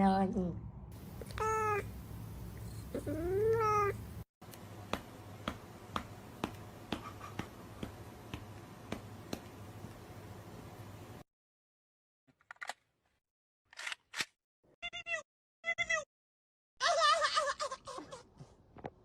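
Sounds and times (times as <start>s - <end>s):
cat meowing: 1.3s - 1.9s, 3.0s - 4.0s.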